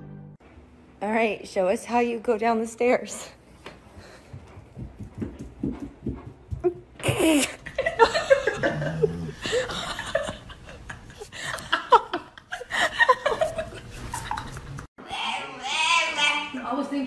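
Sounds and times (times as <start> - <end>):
woman laughing: 6.6 - 14.9.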